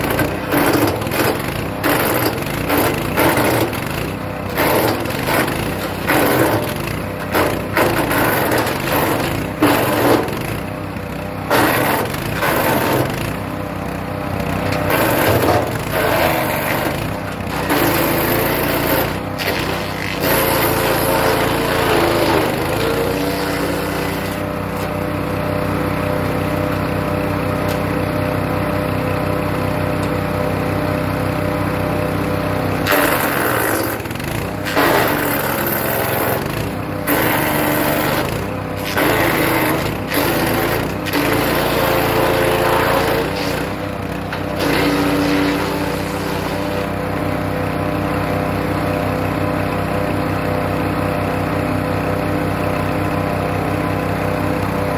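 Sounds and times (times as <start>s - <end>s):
wood chipper engine running: 0.0s - 54.9s
branches being shredded: 44.4s - 46.8s.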